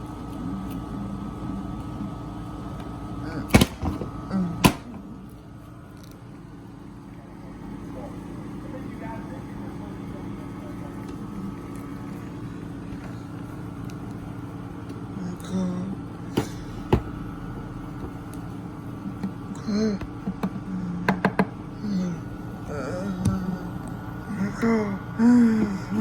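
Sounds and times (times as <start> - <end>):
boat motor humming: 0.0 - 26.0
people talking: 7.5 - 11.8, 15.2 - 16.5.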